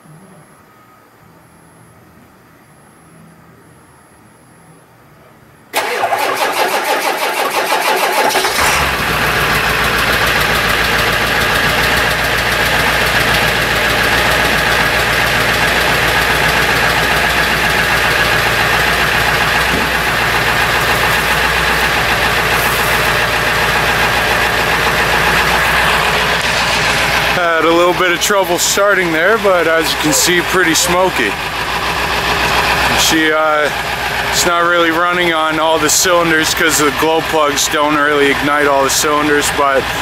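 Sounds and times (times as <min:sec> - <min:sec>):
diesel engine rough idle: 0:05.7 - 0:40.0
starter motor cranking: 0:05.8 - 0:33.1.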